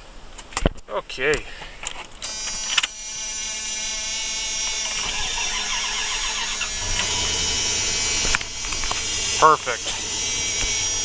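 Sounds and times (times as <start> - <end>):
starter motor cranking: 2.2 - 11.0
engine running steadily: 4.0 - 11.0.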